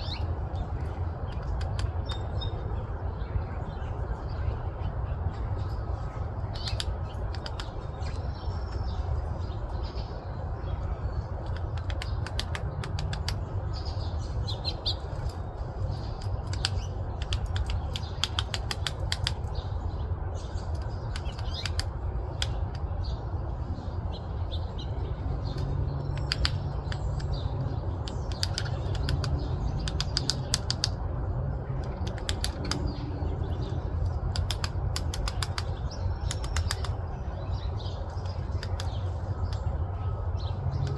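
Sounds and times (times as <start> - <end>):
low background rumble: 0.0 - 40.9
woodpecker tapping on wood: 1.3 - 2.3, 6.6 - 8.8, 11.4 - 13.5, 16.0 - 19.7, 20.7 - 22.9, 25.4 - 31.1, 31.7 - 39.7.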